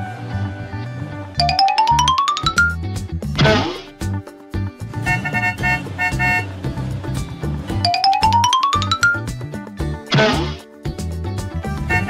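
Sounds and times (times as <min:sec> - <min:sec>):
rising run of bright notes: 0:01.4 - 0:02.8
cartoon music with bass beat: 0:01.4 - 0:06.5, 0:07.2 - 0:12.0.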